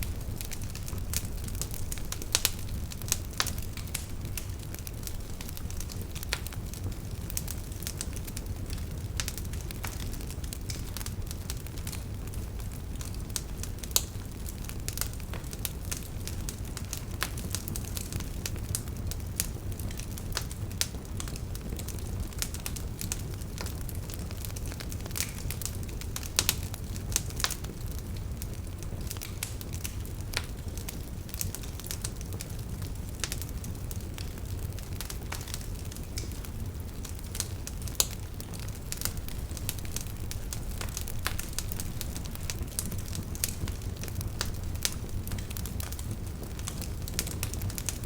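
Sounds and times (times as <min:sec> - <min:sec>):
fire crackling in fireplace: 0:00.0 - 0:48.0.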